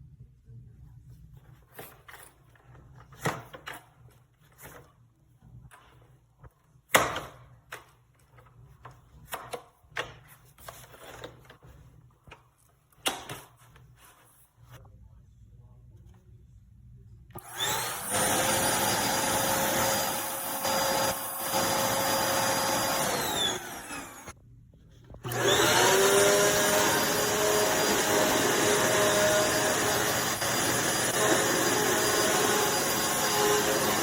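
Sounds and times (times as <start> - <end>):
faint low hum: 13.6 - 17.4.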